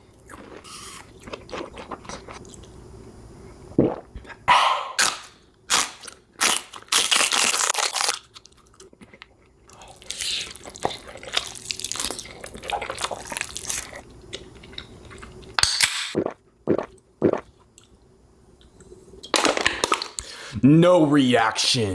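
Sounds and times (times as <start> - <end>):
person crunching food: 0.1 - 2.7, 5.0 - 17.9.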